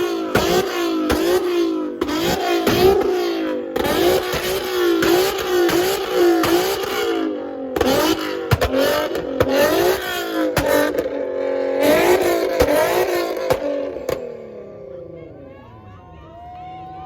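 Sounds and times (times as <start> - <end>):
exhaust pops: 0.0 - 11.2
car engine revving: 0.0 - 15.1.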